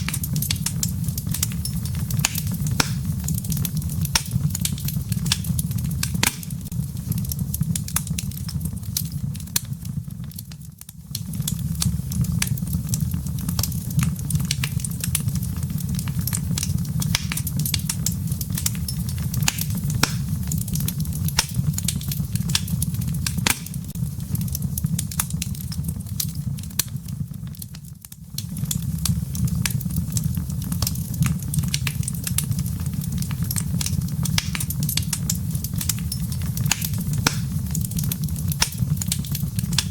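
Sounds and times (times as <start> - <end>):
low rumble of flame: 0.0 - 39.9
wood fire crackling: 0.0 - 39.9.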